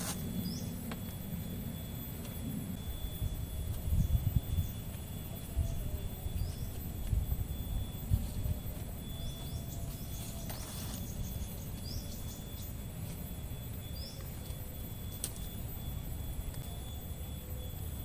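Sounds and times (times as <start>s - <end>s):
bird chirps: 0.0s - 2.0s, 2.8s - 18.0s
low wind rumble: 0.0s - 10.4s
high insect drone: 0.0s - 18.0s.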